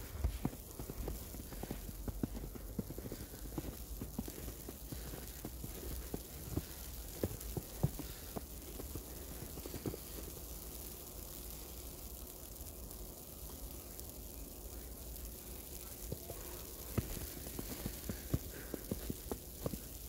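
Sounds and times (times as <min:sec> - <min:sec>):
footsteps on snow: 0:00.0 - 0:10.5, 0:16.0 - 0:20.0
outdoor hiss: 0:00.0 - 0:20.0.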